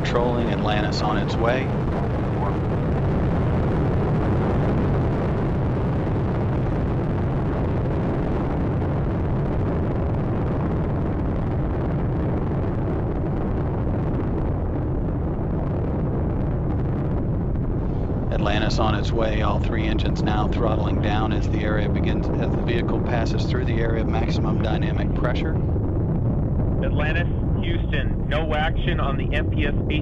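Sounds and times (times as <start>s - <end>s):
rocket engines rumbling: 0.0s - 30.0s.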